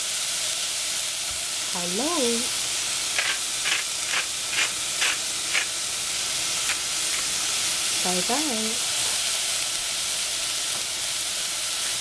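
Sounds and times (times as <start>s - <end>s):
eggplant sizzling in pan: 0.0s - 12.0s
spice mill grinding: 2.7s - 7.6s.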